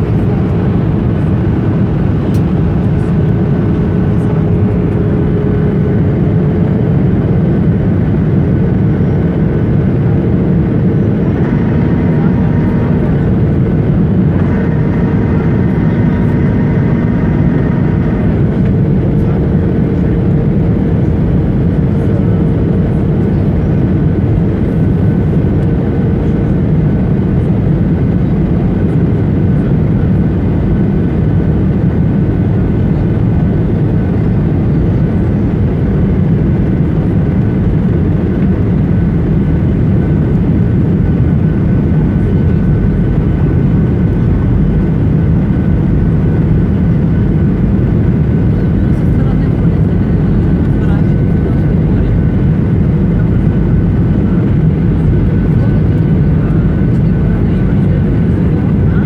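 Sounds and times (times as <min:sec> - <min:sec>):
airplane cabin engine and airflow rush: 0:00.0 - 0:59.0
faint whine: 0:00.0 - 0:59.0.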